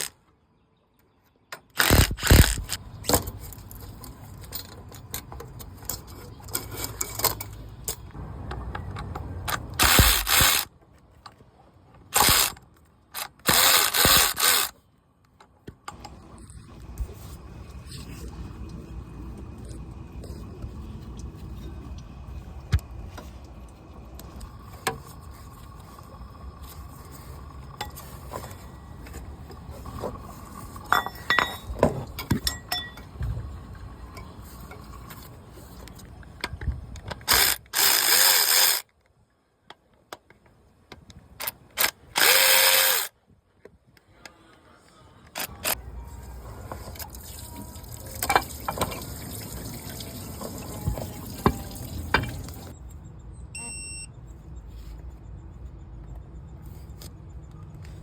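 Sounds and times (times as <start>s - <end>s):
metal tools clicking and clanking: 2.6s - 10.7s, 30.8s - 33.2s.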